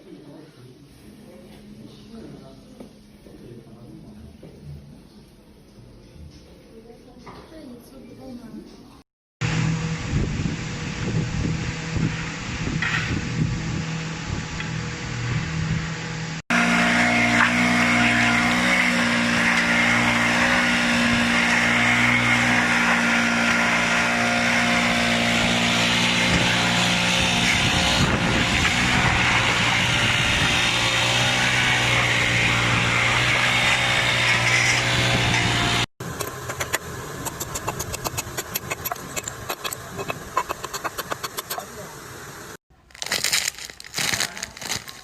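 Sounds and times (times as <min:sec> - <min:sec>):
machine humming: 0:09.4 - 0:42.6
rapid clicks: 0:36.2 - 0:41.6.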